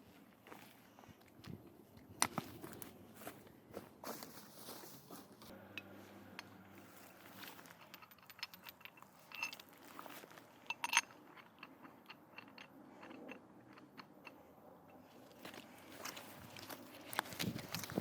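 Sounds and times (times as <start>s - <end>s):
footsteps crunching dry leaves: 2.6s - 7.7s.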